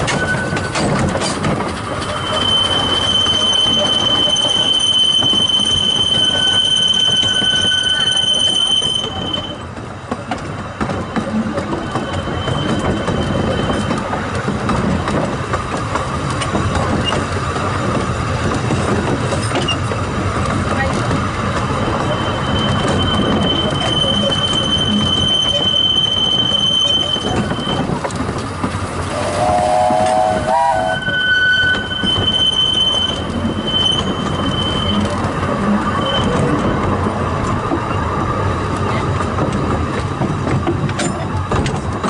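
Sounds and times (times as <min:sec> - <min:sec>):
train wheels squealing: 0:00.0 - 0:09.6, 0:11.7 - 0:14.2, 0:21.6 - 0:27.9, 0:30.1 - 0:37.0
train coaches rumbling on track: 0:00.0 - 0:42.0
locomotive warning horn: 0:29.1 - 0:35.2.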